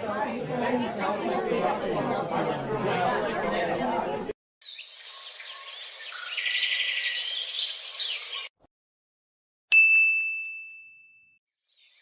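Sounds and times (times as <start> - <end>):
birds chirping: 4.6 - 8.5
bell-like ding: 9.7 - 11.4.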